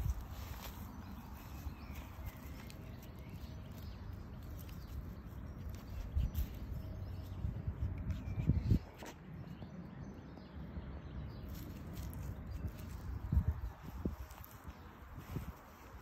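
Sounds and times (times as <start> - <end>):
wind buffeting microphone: 0.0 - 4.9, 5.9 - 9.7, 11.2 - 16.0.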